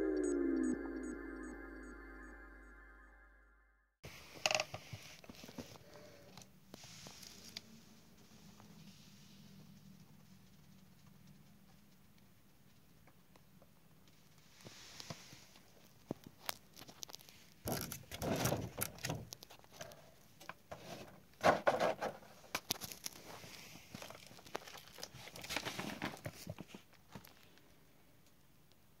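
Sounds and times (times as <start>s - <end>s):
paper rustling and crinkling: 20.8s - 27.6s.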